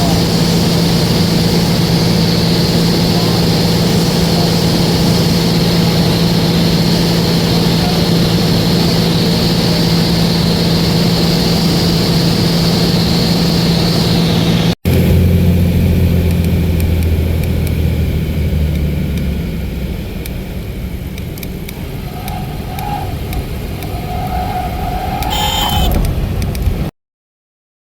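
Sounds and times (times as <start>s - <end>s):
low vehicle hum: 0.0s - 26.9s
plane propeller engine droning: 0.0s - 26.9s
short pitched sounds: 21.5s - 26.9s.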